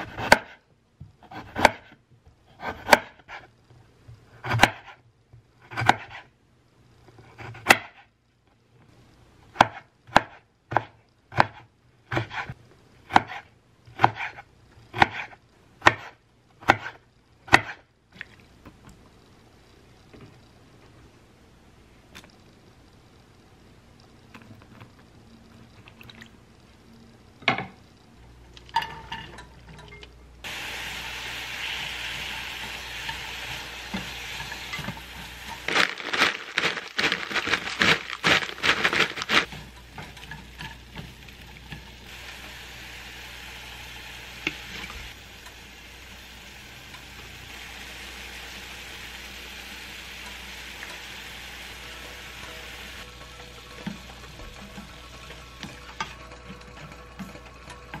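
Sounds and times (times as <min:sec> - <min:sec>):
vegetables sizzling in a pan: 0:30.4 - 0:56.2
vegetables splashing in water: 0:35.7 - 0:39.5.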